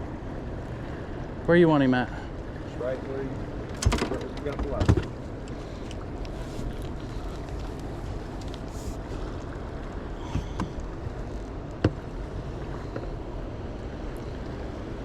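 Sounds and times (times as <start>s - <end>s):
low outdoor rumble: 0.0s - 15.0s
sharp knocks or clicks: 3.8s - 5.1s.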